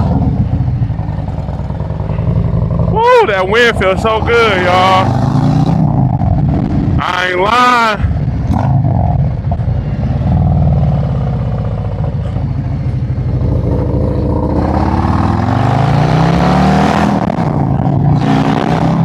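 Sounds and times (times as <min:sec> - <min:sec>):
motorcycle engine running: 0:00.0 - 0:18.2
wind rushing over microphone: 0:03.9 - 0:07.0.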